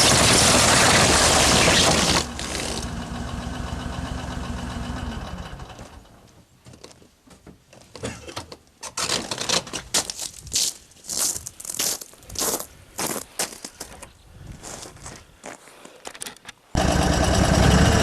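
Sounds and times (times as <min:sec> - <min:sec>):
vehicle engine idling: 0:02.3 - 0:06.3, 0:16.8 - 0:18.0
crunching and crackling: 0:07.8 - 0:14.1.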